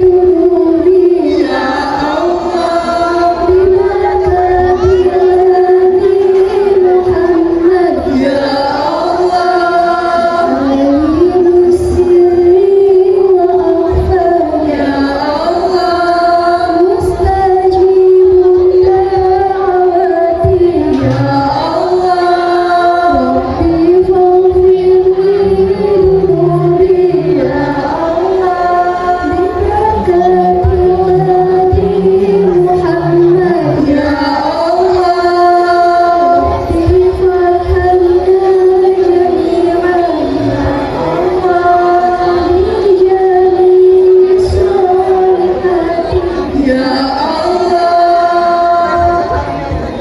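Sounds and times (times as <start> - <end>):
voices singing over music: 0.0 - 50.0.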